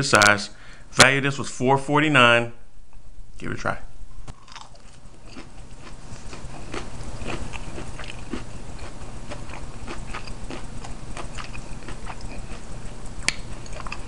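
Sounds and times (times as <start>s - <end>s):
person chewing crispy chicken: 4.3s - 14.0s.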